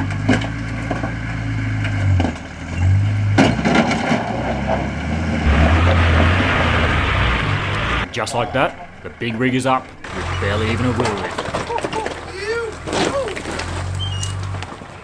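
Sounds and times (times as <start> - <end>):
off-road vehicle engine pulling: 0.0 - 15.0
tyres crunching over rock: 5.4 - 15.0.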